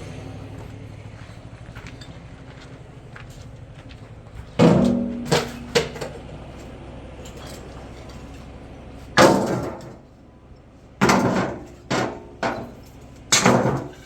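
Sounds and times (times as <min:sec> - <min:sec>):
metal object clanging: 0:04.6 - 0:06.2.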